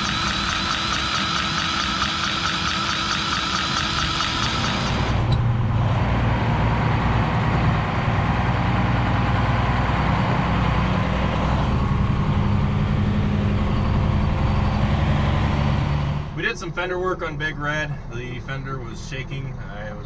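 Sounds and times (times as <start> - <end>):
diesel truck engine humming: 0.0 - 20.0.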